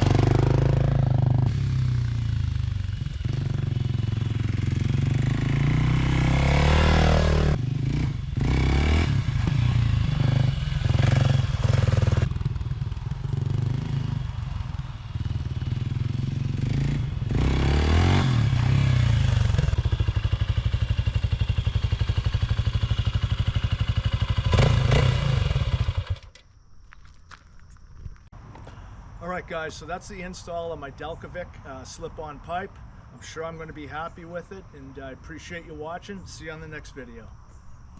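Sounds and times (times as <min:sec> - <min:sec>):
motorcycle engine revving and idling: 0:00.0 - 0:26.4.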